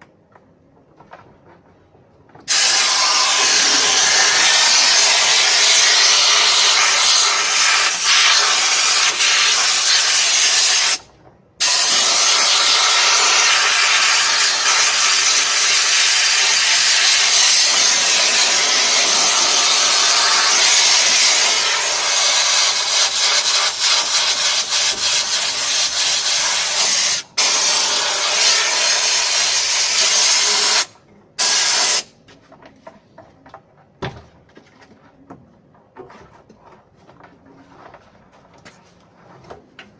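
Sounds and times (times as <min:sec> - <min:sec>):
high-pressure spray jet hissing: 0:02.5 - 0:11.0, 0:11.6 - 0:32.1.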